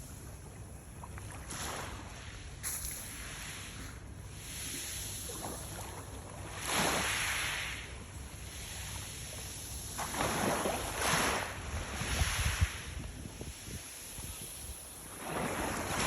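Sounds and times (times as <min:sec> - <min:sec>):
small waves washing ashore: 0:00.0 - 0:16.0
wind buffeting microphone: 0:11.6 - 0:16.0.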